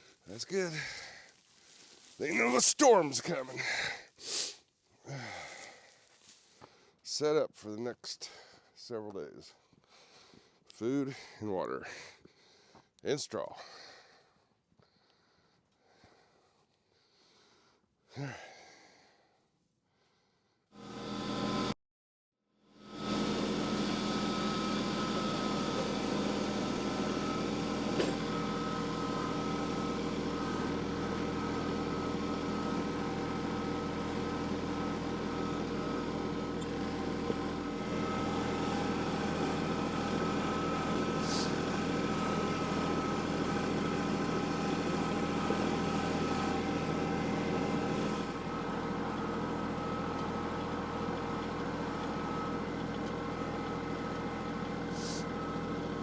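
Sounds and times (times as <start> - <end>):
vehicle engine running: 23.0 - 56.0.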